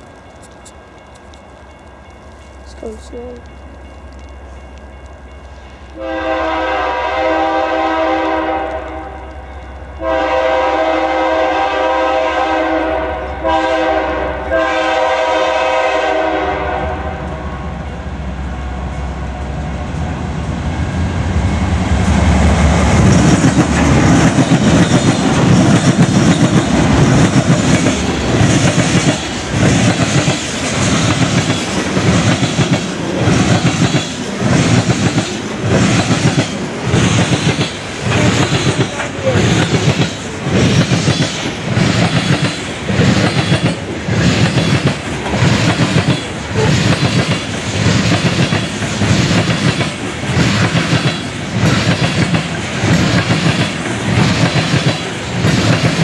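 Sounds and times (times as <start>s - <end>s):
locomotive air horn: 6.0s - 9.3s, 10.0s - 17.6s
train wheels clacking over rail joints: 22.7s - 56.0s.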